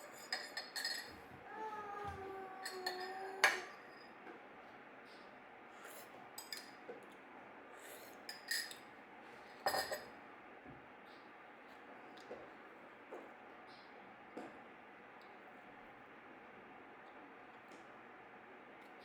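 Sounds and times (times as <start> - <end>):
glassware clinking: 0.2 - 1.1, 9.7 - 10.1.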